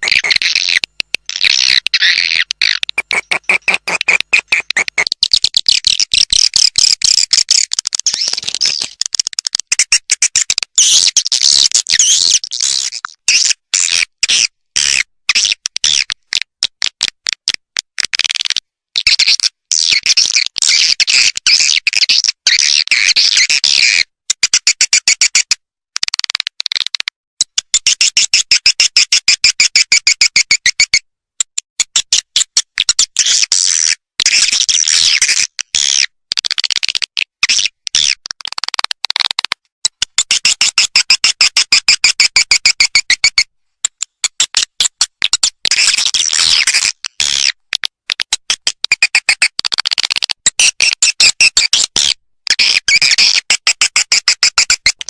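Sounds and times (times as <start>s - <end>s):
high chattering bird chirps: 1.4s - 5.1s.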